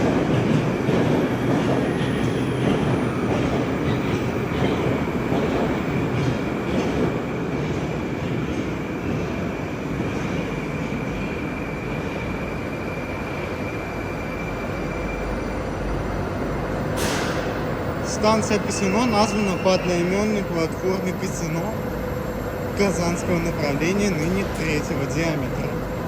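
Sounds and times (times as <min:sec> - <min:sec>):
train wheels clicking on rails: 0:00.0 - 0:12.7, 0:16.8 - 0:21.8.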